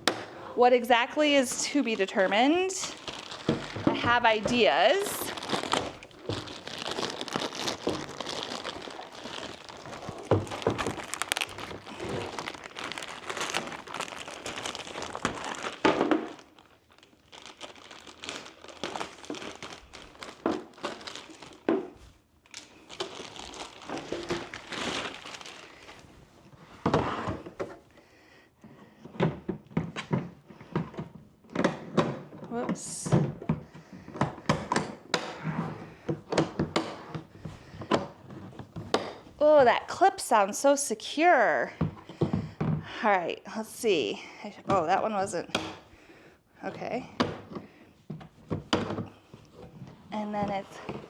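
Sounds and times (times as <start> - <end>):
plastic packaging crinkling: 0.3 - 26.7
plastic boxes knocking: 2.9 - 16.4.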